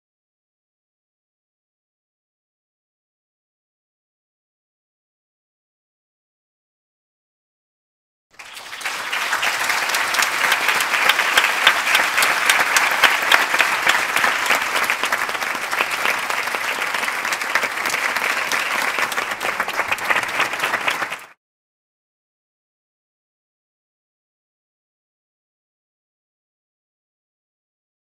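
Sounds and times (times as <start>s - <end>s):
audience applauding: 8.4s - 21.4s.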